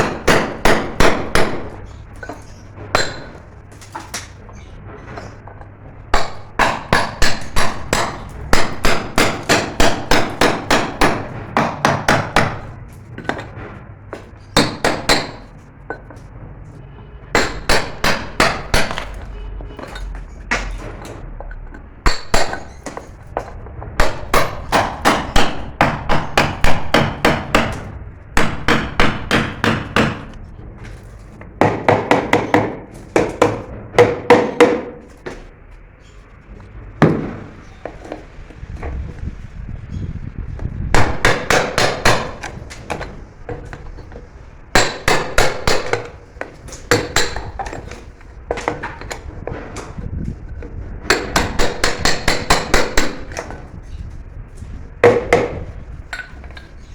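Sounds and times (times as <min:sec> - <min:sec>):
hammer striking fast: 0:00.0 - 0:01.9, 0:06.1 - 0:13.5, 0:17.3 - 0:19.2, 0:24.0 - 0:30.3, 0:41.0 - 0:43.2, 0:44.7 - 0:46.2, 0:51.1 - 0:53.5.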